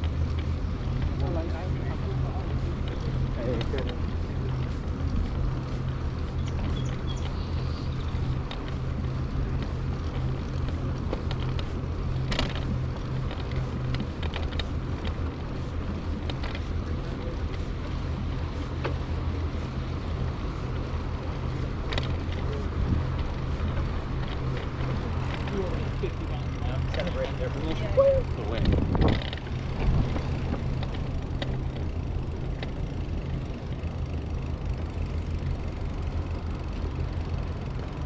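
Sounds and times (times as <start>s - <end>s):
bicycle tyre and road noise: 0.0s - 38.0s
wind buffeting microphone: 0.0s - 38.0s.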